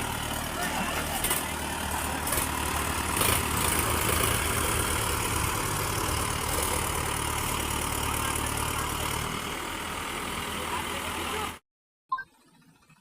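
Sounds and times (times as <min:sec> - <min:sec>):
tractor diesel engine rumbling: 0:00.0 - 0:11.6.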